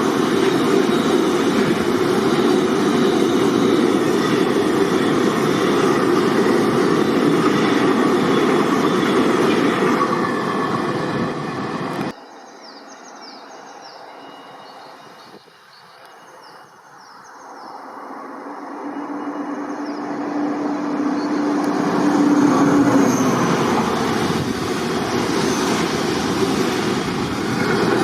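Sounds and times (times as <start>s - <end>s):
train rolling rumble: 0.0s - 12.2s, 17.8s - 28.0s.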